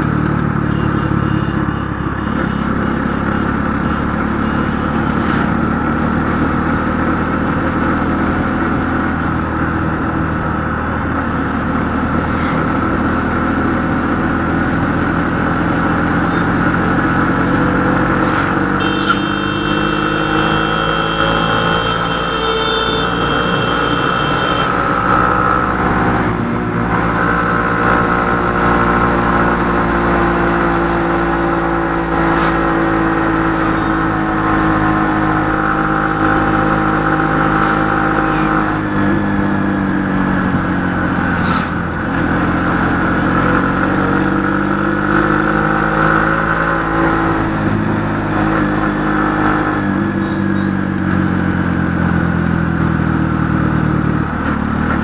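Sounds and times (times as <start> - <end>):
vehicle engine running: 8.9 - 29.0.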